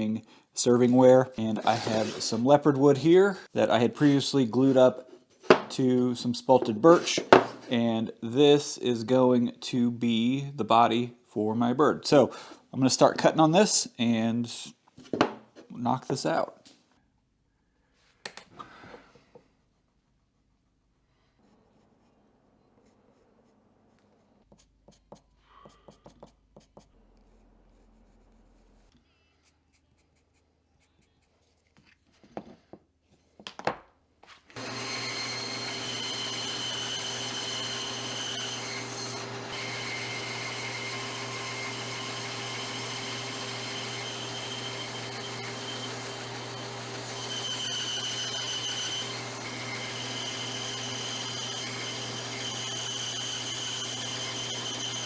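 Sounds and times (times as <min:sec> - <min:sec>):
band saw cutting wood: 0:01.4 - 0:03.2, 0:03.8 - 0:06.0, 0:06.6 - 0:07.9, 0:34.6 - 0:55.0.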